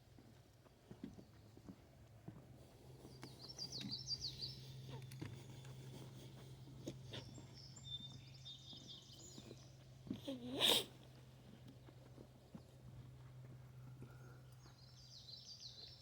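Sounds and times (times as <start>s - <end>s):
wild birds singing: 3.1s - 10.1s, 13.7s - 16.0s.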